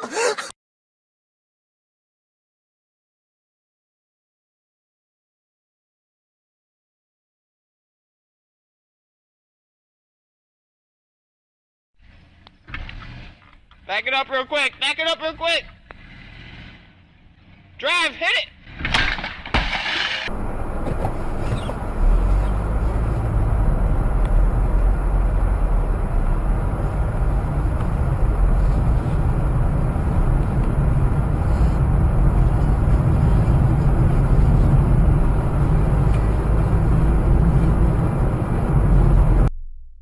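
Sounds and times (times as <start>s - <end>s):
truck engine under load: 18.6s - 39.5s.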